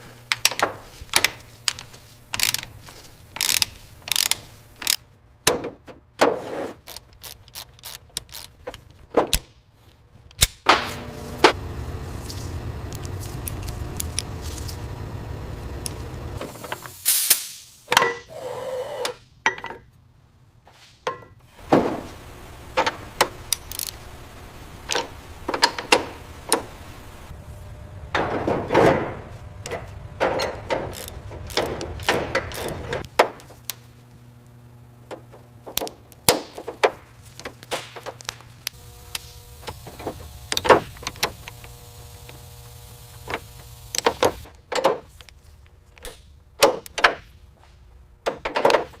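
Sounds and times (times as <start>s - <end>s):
low steady hum: 10.8s - 16.9s, 21.5s - 44.5s
tools knocking and clanking: 19.4s - 19.9s, 28.1s - 33.6s.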